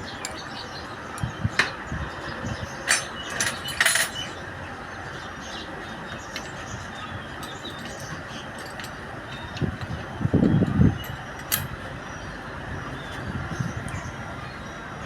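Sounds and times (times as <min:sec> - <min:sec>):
steady background noise: 0:00.0 - 0:15.0
metal parts clinking: 0:02.8 - 0:04.3, 0:07.4 - 0:09.0, 0:11.0 - 0:11.8.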